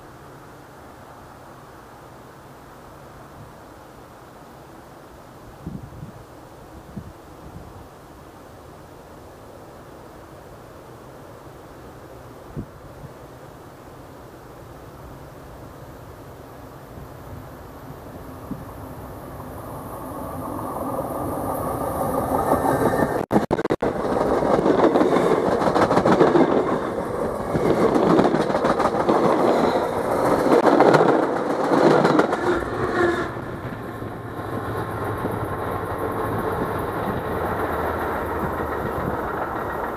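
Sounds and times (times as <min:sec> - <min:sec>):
train rumble and wheel clatter: 0:14.2 - 0:39.9.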